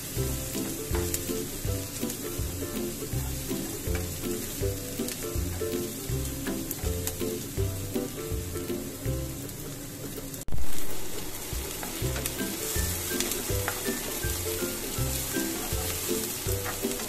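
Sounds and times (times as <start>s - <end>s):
onion sizzling in a frying pan: 0.0s - 17.0s
spatula stirring: 11.5s - 17.0s.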